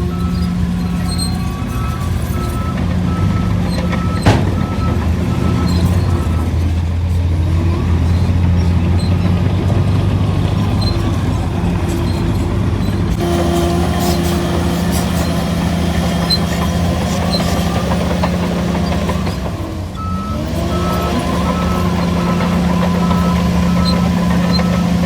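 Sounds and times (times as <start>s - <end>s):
bulldozer diesel engine: 0.0s - 25.0s
metallic clank: 3.8s - 6.1s.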